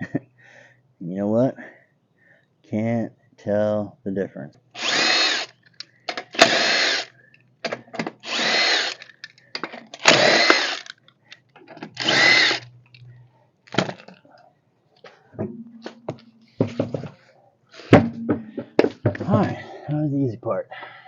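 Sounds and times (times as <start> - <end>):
impact drill bursts: 4.8 - 5.6, 6.4 - 7.1, 8.2 - 9.1, 10.0 - 10.9, 12.0 - 12.7.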